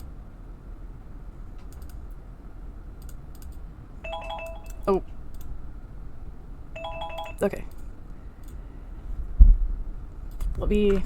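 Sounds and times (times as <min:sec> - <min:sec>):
keyboard and mouse clicks: 0:01.6 - 0:02.0, 0:03.0 - 0:03.6.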